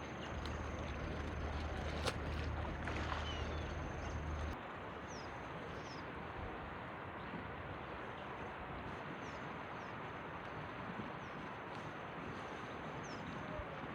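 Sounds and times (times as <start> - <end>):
river rushing: 0.0 - 4.6.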